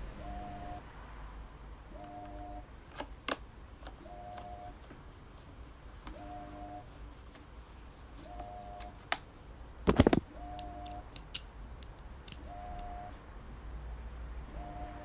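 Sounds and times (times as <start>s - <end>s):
fan parts clicking: 5.9s - 12.9s.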